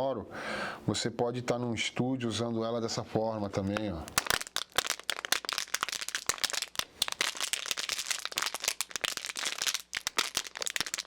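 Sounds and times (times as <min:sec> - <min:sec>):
plastic bottle crumpling: 0:04.0 - 0:11.0.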